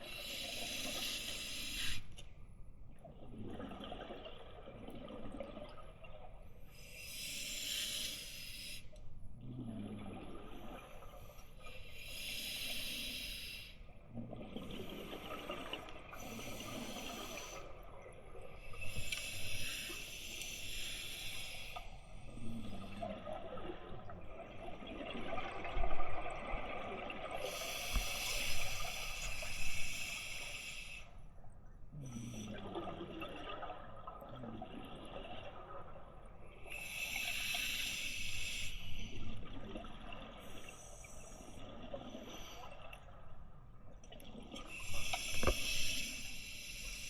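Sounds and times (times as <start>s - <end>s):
regulator inhalation hiss: 0.1s - 2.0s, 6.9s - 8.8s, 12.0s - 13.7s, 18.8s - 21.8s, 27.4s - 31.1s, 36.7s - 38.8s, 44.8s - 47.0s
exhaled bubbles burbling: 3.0s - 6.4s, 32.1s - 36.6s.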